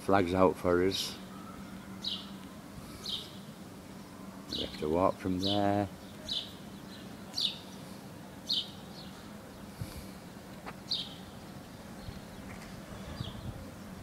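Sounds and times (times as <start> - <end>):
small bird chirping: 3.0 - 3.5, 4.5 - 9.7.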